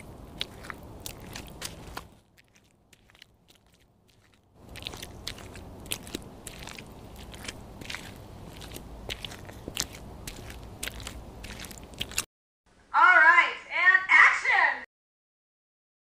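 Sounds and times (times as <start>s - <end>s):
footsteps on gritty dirt path: 0.0s - 12.3s.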